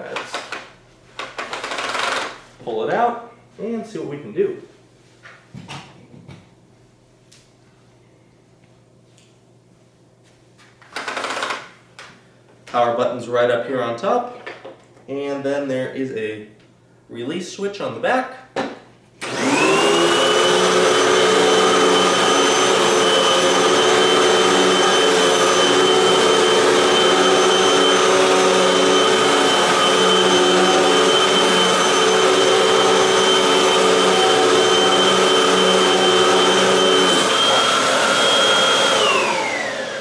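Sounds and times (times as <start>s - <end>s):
vacuum cleaner motor whine: 19.2s - 40.0s.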